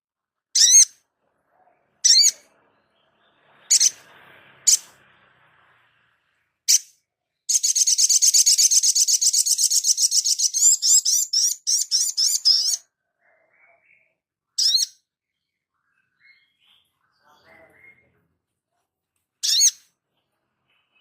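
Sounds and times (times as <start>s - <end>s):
small bird chipping and trilling: 0.6s - 1.0s, 2.0s - 4.1s, 6.7s - 18.1s, 19.4s - 20.0s.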